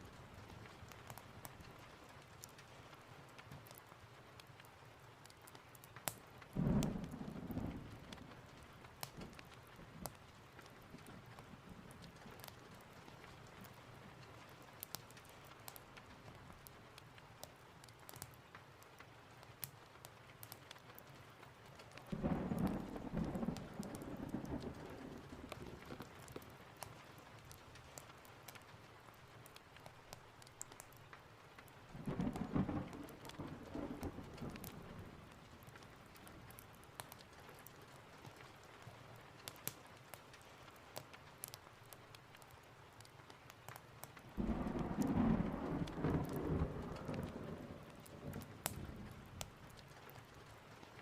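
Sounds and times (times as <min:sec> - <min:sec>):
fireplace crackling: 0:00.0 - 0:51.0
steady rain: 0:00.0 - 0:51.0
thunder rolling: 0:22.1 - 0:26.0, 0:32.0 - 0:35.2, 0:44.4 - 0:49.4.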